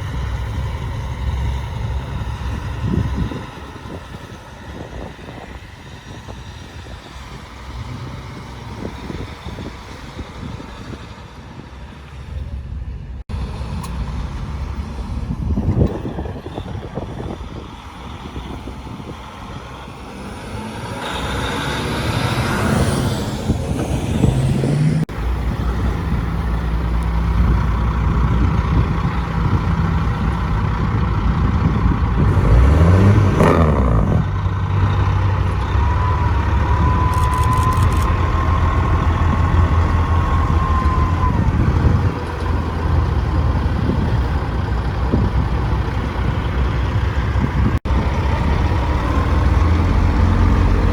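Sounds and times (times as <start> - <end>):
truck diesel engines running: 0.0 - 50.9
truck passing close: 0.0 - 50.9
engine revving: 13.3 - 50.9.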